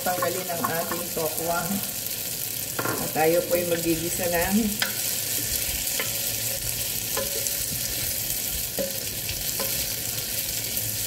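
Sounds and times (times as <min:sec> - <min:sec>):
tofu sizzling in a pot: 0:00.0 - 0:11.0
spatula stirring: 0:04.8 - 0:10.8
spatula knocking on pan: 0:07.1 - 0:07.8, 0:08.8 - 0:09.0.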